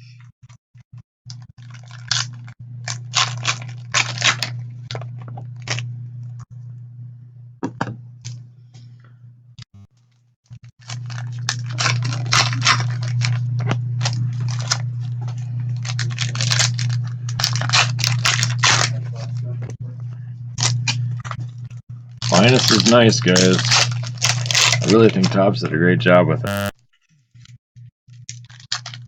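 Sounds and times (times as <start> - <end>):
low electrical hum: 0.9 - 26.7
card packaging crinkling and tearing: 1.6 - 5.8, 10.8 - 19.4, 22.2 - 25.4, 28.3 - 29.0.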